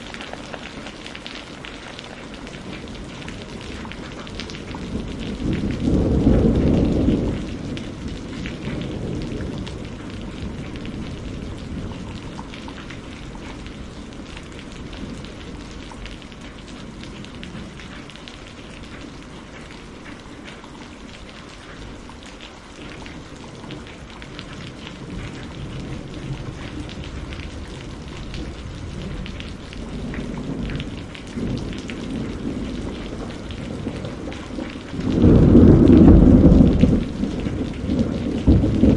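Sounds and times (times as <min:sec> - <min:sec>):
steady rainfall: 0:00.0 - 0:38.9
rolling thunder: 0:02.6 - 0:17.8, 0:24.5 - 0:38.9.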